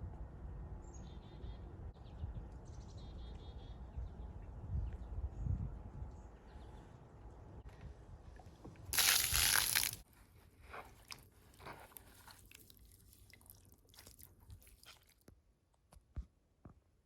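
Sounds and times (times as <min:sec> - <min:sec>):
loud crunching: 0:09.0 - 0:10.0
small crunches and clicks: 0:09.0 - 0:10.0.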